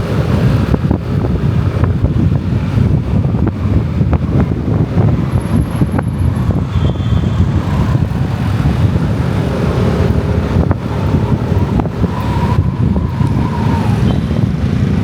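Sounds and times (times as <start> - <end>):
motorcycle road noise: 0.0 - 15.0
wind buffeting microphone: 0.0 - 15.0.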